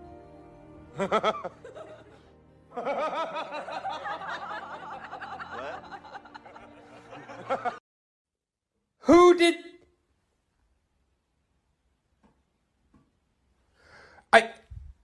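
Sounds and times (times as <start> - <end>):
background music: 0.0 - 7.8
person laughing: 1.0 - 7.8.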